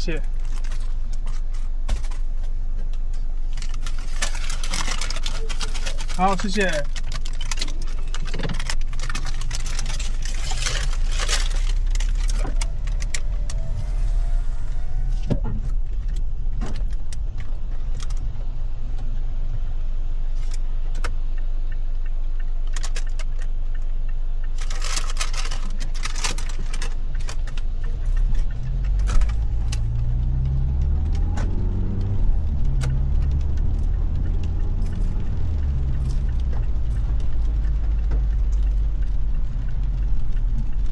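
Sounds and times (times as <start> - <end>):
car engine idling: 0.0 - 40.9
crinkling rustles and clicks: 0.1 - 13.6, 24.6 - 40.9.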